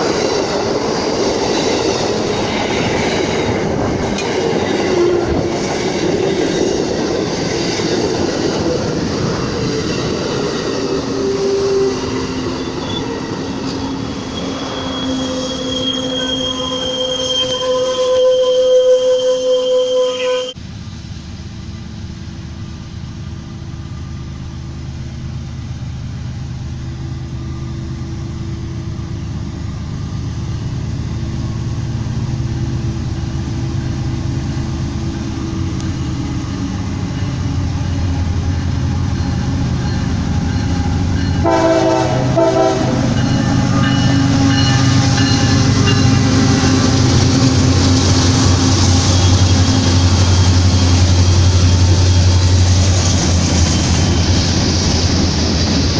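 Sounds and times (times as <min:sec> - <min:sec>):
diesel locomotive drone: 0:00.0 - 0:55.9
train horn blast: 0:02.4 - 0:06.6, 0:10.8 - 0:20.6, 0:40.5 - 0:52.4.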